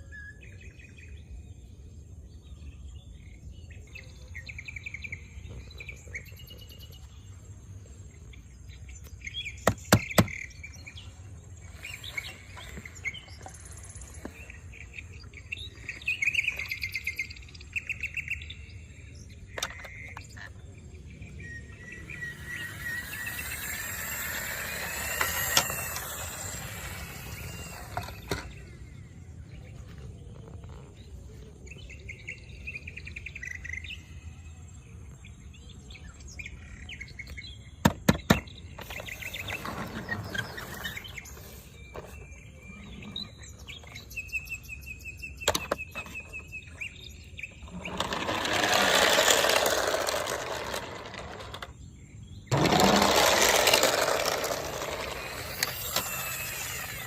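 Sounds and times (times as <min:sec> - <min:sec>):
small birds chirping: 0:00.0 - 0:57.0
sweeping bird calls: 0:02.4 - 0:34.2.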